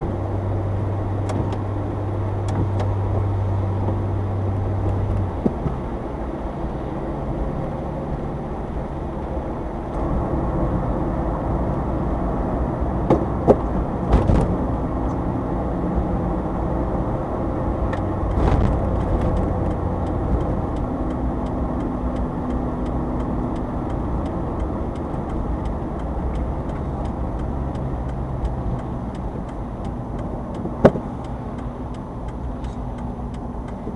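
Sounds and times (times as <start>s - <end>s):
road noise: 0.0s - 33.9s
vehicle engine driving: 0.0s - 33.9s
knocks from bumps: 13.1s - 14.6s.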